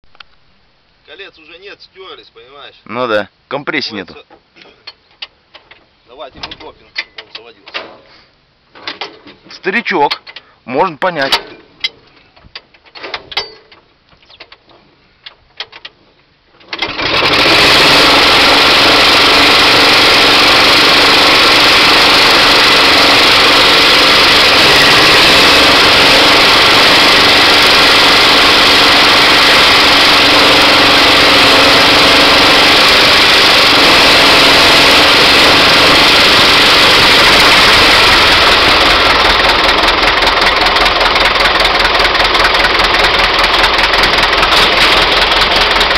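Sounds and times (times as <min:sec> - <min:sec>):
small petrol engine high-revving: 0:16.8 - 0:45.9
diesel engine rhythmic beat: 0:24.1 - 0:45.9.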